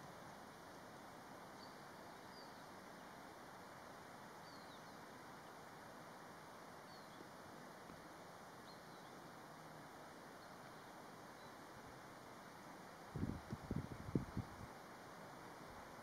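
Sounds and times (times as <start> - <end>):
faint outdoor hiss: 0.0 - 16.0
faint high bird chirps: 4.4 - 5.6.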